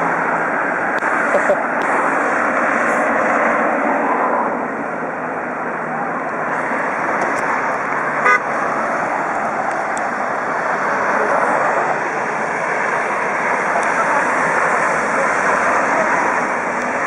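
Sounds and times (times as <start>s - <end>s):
highway traffic: 0.0s - 17.0s
car horn toot: 8.2s - 8.5s.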